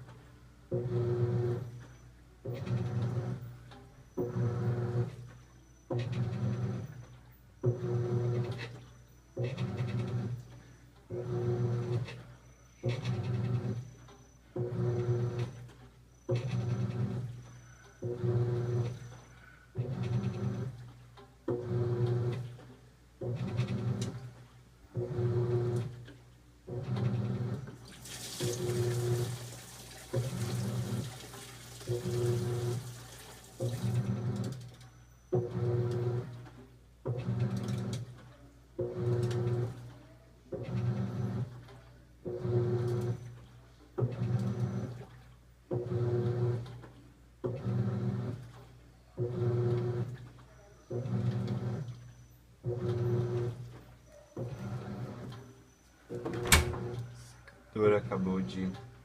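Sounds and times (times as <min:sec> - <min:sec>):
washing machine agitating: 0:00.7 - 0:01.8, 0:02.4 - 0:22.6, 0:23.2 - 0:36.4, 0:37.0 - 0:38.2, 0:38.8 - 0:57.2
water and clothes swishing: 0:27.8 - 0:34.2.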